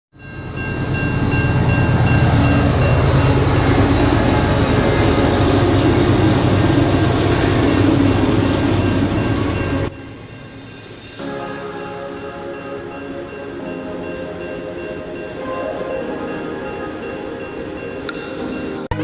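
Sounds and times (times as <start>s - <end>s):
train rumbling: 0.2s - 19.0s.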